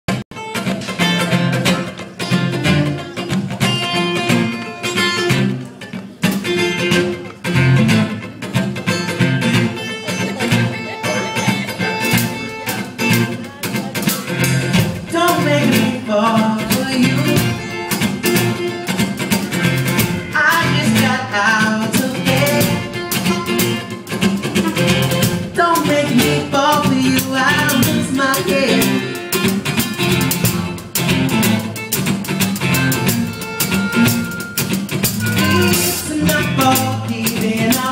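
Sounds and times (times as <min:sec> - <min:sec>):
live band playing: 0:00.1 - 0:37.9
plucked and strummed guitar: 0:00.1 - 0:37.9
wavering melody line: 0:35.2 - 0:36.2.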